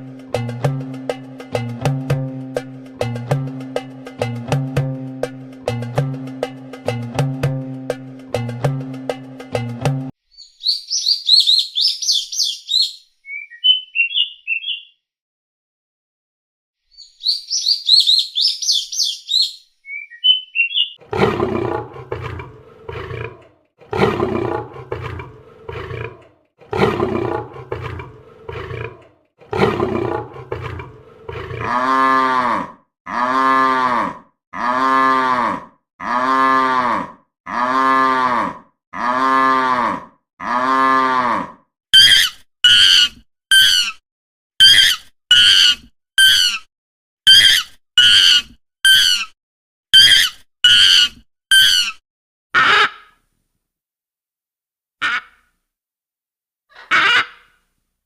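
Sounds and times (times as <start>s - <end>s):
bird chirps: 10.2s - 15.0s, 16.9s - 21.0s
deep animal roars: 21.0s - 41.6s.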